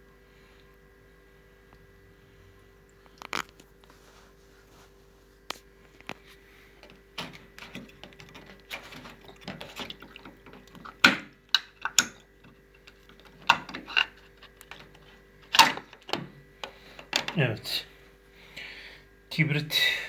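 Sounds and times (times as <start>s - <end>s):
plastic filter clicking and scraping: 6.0s - 17.5s
water draining: 6.8s - 17.7s.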